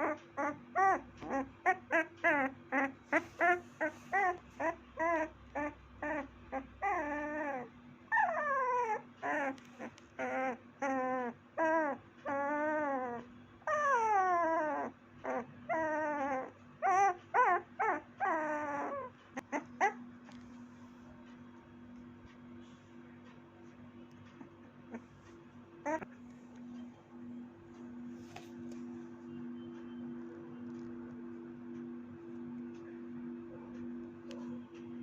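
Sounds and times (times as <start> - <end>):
puppy whimpering and whining: 0.0 - 21.1, 24.2 - 25.1, 25.8 - 26.2.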